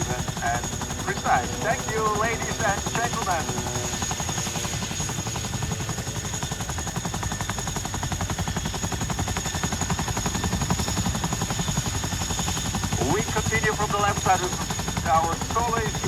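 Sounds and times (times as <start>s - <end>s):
high steady whine: 0.0s - 4.4s
helicopter rotors chopping: 0.0s - 16.0s.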